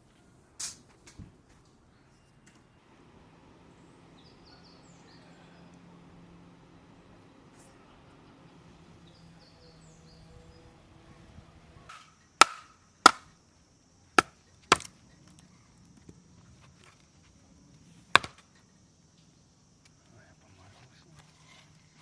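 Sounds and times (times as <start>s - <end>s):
blade chopping wood: 11.9s - 13.3s, 14.2s - 15.0s, 18.1s - 18.4s.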